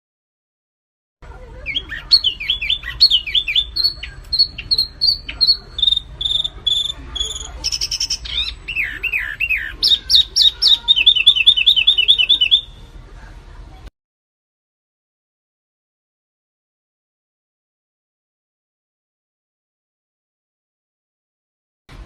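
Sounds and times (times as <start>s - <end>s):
songbirds chirping and whistling: 1.5s - 12.9s.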